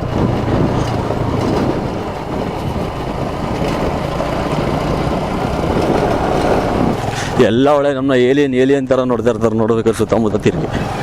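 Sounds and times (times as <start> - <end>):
motorcycle engine low hum: 0.0 - 8.5
wind and road noise: 0.0 - 11.0.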